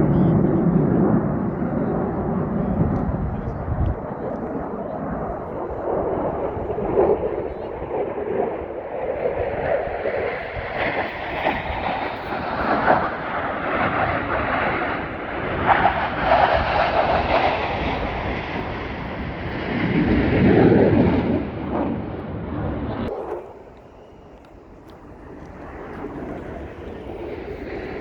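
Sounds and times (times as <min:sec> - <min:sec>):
airplane engine roar: 0:00.0 - 0:28.0.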